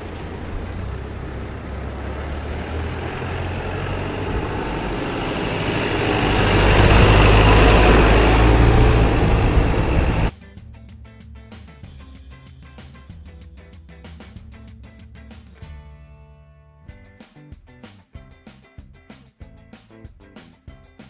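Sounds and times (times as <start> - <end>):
diesel truck driving: 0.0 - 10.3
road noise: 0.0 - 10.3.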